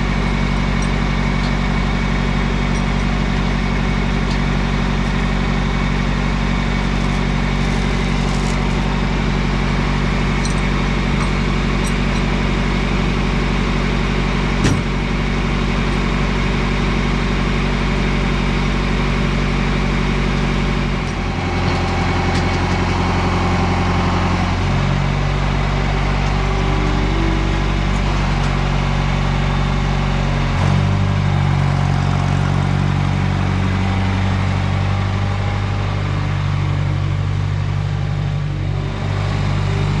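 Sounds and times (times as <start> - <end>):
tractor engine running: 0.0 - 30.3.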